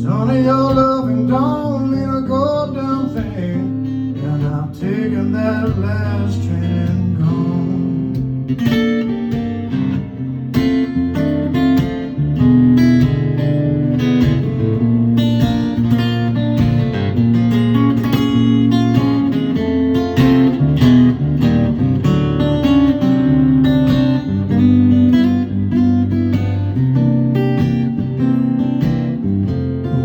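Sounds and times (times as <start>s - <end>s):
acoustic guitar blues: 0.0s - 30.0s.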